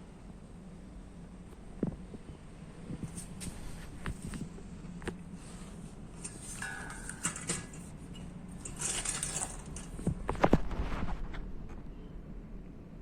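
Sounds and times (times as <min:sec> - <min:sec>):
exhaust fan humming: 0:00.0 - 0:10.6
clicks and knocks: 0:06.2 - 0:10.6.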